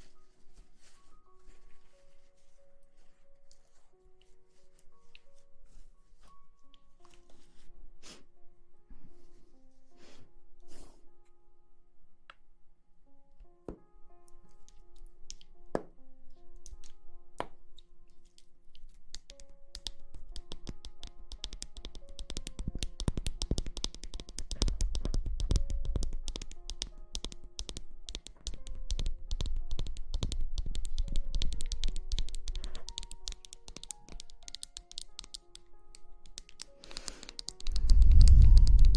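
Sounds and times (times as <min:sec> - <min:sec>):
soft background music: 0:00.0 - 0:38.9
low rumble: 0:37.7 - 0:38.9.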